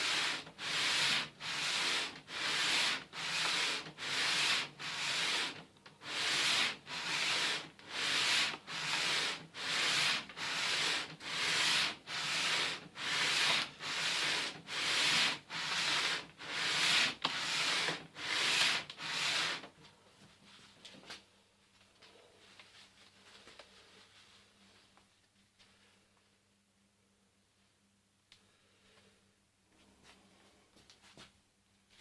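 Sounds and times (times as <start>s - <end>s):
metal flange rasping on abrasive paper: 0.0s - 19.7s.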